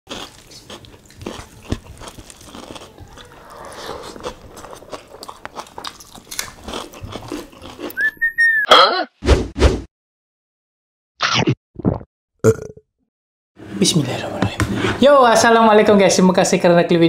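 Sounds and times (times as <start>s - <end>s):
people chewing with wet clicks: 0.1s - 8.0s
whistle-like tone: 8.0s - 8.7s.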